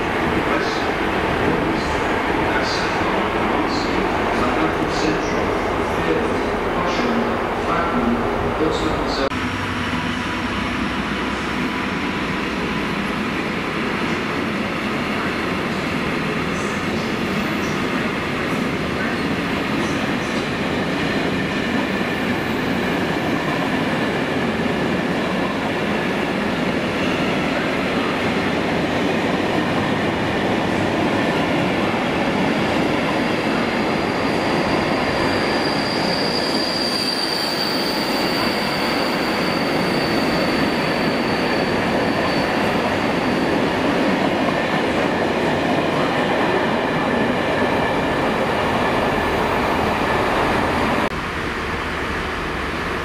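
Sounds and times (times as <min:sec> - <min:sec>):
freight train wheels on rails: 0:00.0 - 0:53.0
high wheel squeal: 0:33.2 - 0:43.8.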